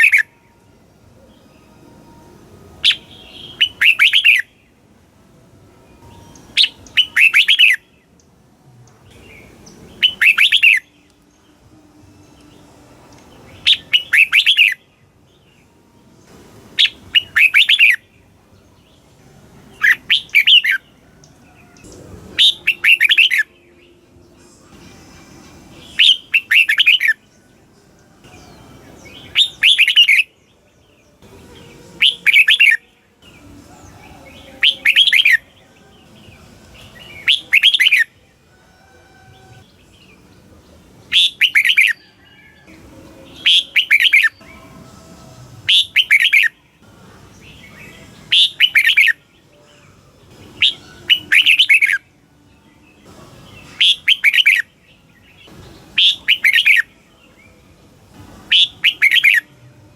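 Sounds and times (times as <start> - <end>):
bulbul singing bright phrase: 31.3 - 38.2.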